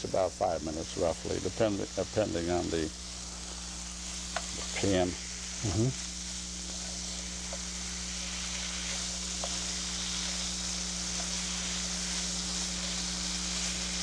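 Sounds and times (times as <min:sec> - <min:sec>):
beef and onions sizzling in pan: 0:00.0 - 0:14.0.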